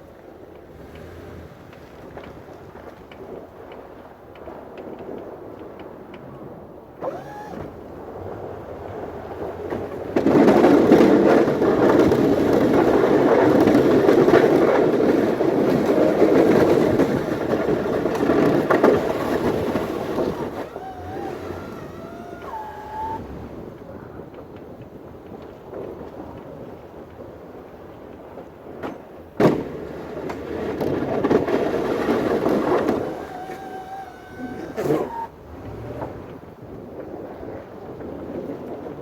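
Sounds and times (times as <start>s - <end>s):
snow shovel scraping pavement: 10.2s - 23.4s, 30.4s - 36.3s.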